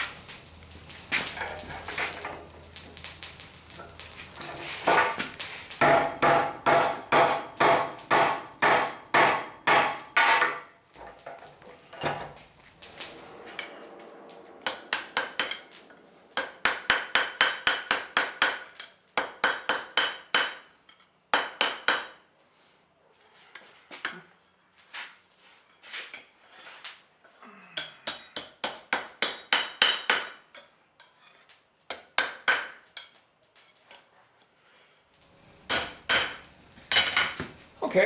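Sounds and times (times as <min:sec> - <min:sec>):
hammer striking steel on anvil: 0:05.8 - 0:10.7, 0:13.5 - 0:22.3, 0:27.8 - 0:31.3, 0:31.9 - 0:33.2, 0:35.3 - 0:37.6
thin high ring: 0:11.8 - 0:24.8, 0:30.2 - 0:31.8, 0:32.4 - 0:38.0.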